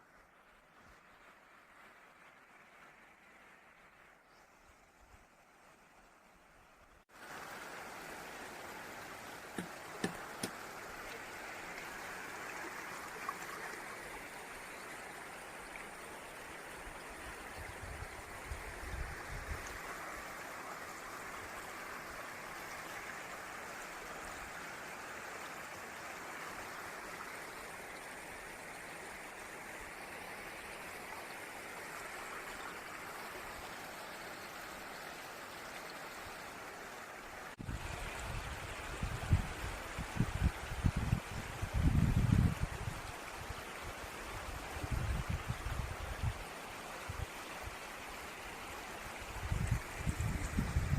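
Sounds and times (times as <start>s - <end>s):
water rushing over waterfall: 7.1s - 16.9s
sharp knocks: 9.6s - 10.6s.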